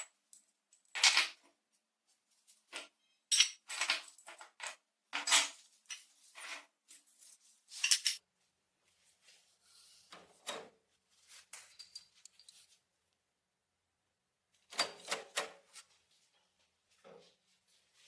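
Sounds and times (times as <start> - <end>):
small metal parts clinking: 11.5 - 12.8.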